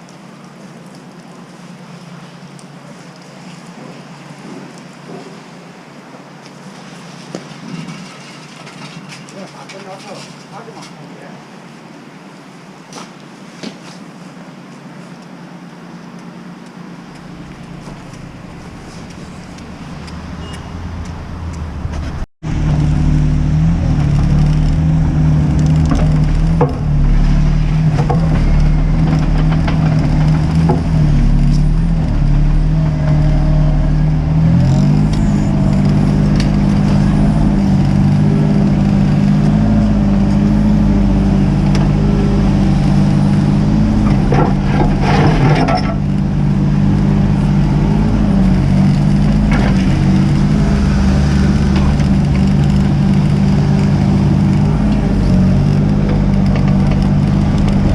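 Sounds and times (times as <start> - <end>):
knocks and scrapes: 7.1 - 10.4, 17.2 - 40.0, 41.6 - 46.4, 47.5 - 57.9
diesel engine running: 16.1 - 57.9.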